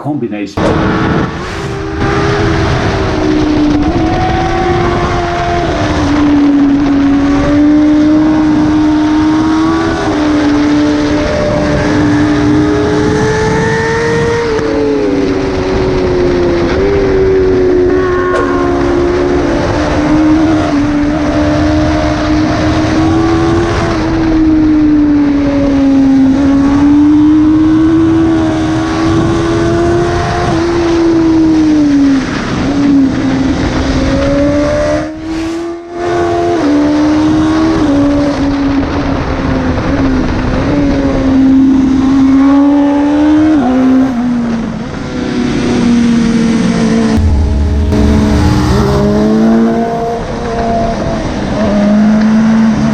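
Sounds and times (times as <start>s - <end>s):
motorcycle engine revving: 0.6s - 31.3s, 41.7s - 52.9s.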